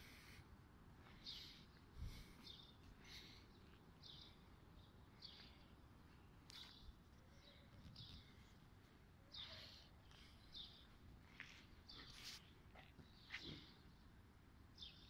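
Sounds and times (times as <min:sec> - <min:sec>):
faint bird chirps: 0:06.4 - 0:14.0.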